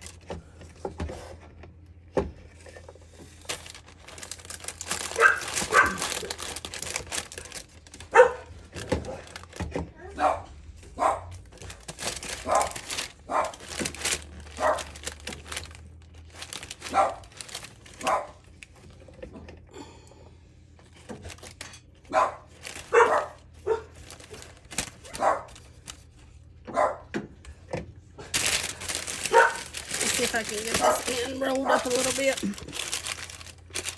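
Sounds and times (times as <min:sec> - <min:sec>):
dog barking: 0:05.1 - 0:06.2, 0:08.1 - 0:08.5, 0:10.0 - 0:11.4, 0:12.4 - 0:13.6, 0:14.5 - 0:15.0, 0:16.8 - 0:17.3, 0:18.0 - 0:18.4, 0:22.1 - 0:24.0, 0:25.0 - 0:25.6, 0:26.7 - 0:27.1, 0:29.2 - 0:29.7, 0:30.7 - 0:32.0.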